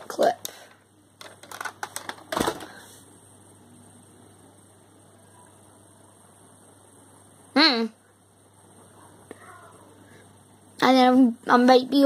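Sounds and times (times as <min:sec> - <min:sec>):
faint room noise: 0:00.0 - 0:12.0
plastic toy clicks and clatter: 0:01.2 - 0:02.7.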